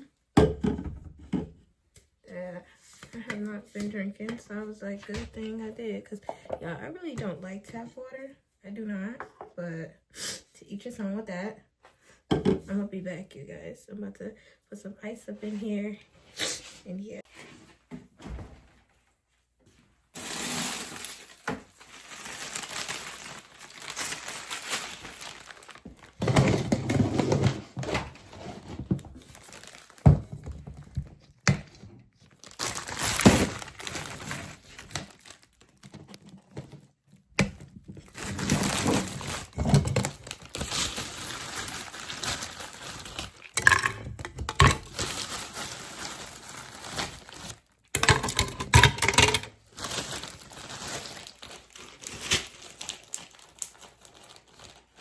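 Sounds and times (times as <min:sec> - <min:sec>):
crinkling and rustling: 0:17.6 - 0:55.0.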